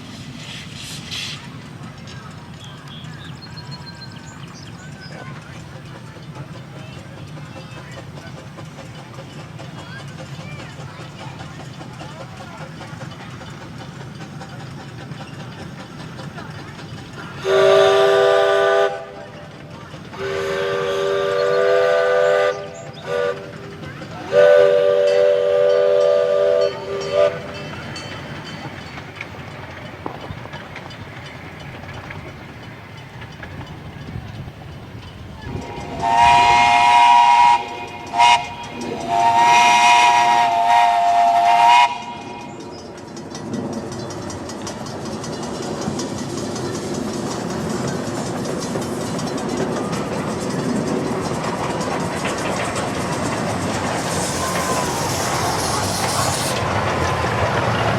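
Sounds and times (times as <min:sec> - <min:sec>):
train running with steady hiss: 0:00.0 - 0:57.9
higher-pitched steam whistle: 0:17.4 - 0:19.2, 0:20.2 - 0:23.7, 0:24.3 - 0:27.5, 0:35.5 - 0:42.7, 0:54.0 - 0:56.6
locomotive whistle blowing: 0:17.4 - 0:19.3, 0:20.1 - 0:23.7, 0:24.3 - 0:27.6, 0:35.4 - 0:42.7, 0:54.0 - 0:56.6.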